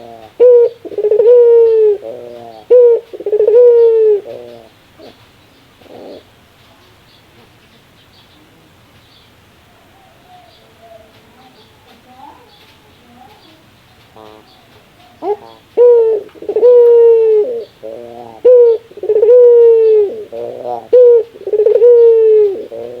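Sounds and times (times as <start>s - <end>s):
dove laughing call: 0.0s - 5.2s, 5.8s - 6.4s, 14.2s - 23.0s.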